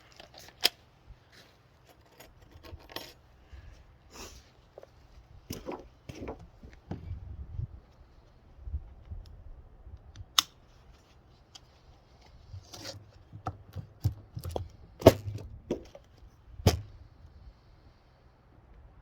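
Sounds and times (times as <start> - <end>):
knocks and clicks of handling: 5.5 - 7.0, 12.7 - 16.9.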